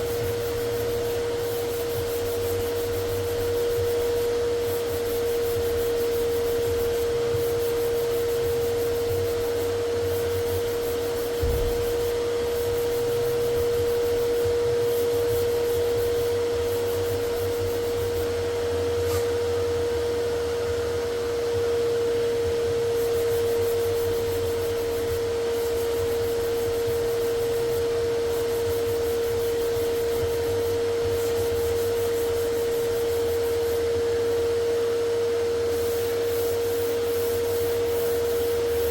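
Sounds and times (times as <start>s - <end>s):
electric tool motor humming: 0.0s - 20.1s, 22.6s - 38.9s
thump: 11.4s - 12.0s.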